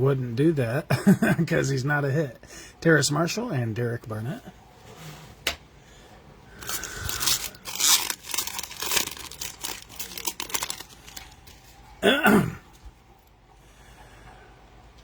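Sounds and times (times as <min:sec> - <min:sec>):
wrappers torn and crinkled: 0:06.6 - 0:11.8.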